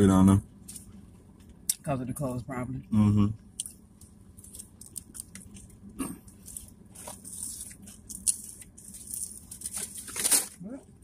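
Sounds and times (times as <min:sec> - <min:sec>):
chewing with wet smacks: 0:03.5 - 0:09.5
food crunching: 0:03.5 - 0:10.6.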